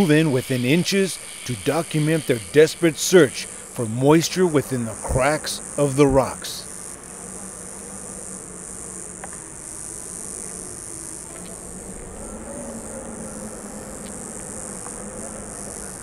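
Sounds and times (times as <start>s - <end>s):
insects buzzing: 0.0s - 16.0s
faint low hum: 7.2s - 16.0s.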